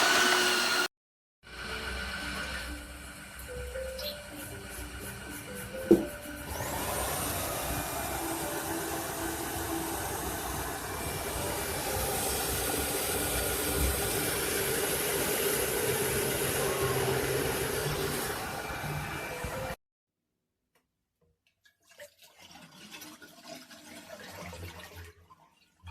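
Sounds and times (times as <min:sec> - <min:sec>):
floor washer motor whining: 0:00.0 - 0:00.9, 0:01.5 - 0:19.8.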